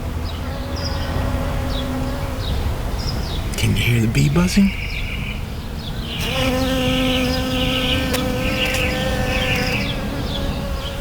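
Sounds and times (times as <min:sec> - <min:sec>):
bee buzzing: 0:05.6 - 0:11.0.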